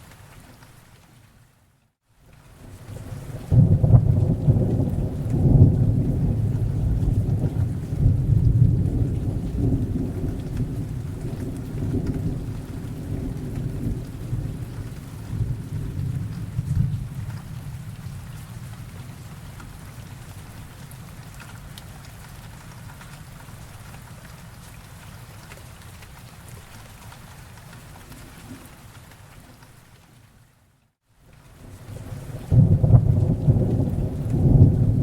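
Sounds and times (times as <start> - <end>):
heavy rain: 0.0 - 35.0
thunder rolling: 3.4 - 18.5, 32.4 - 35.0.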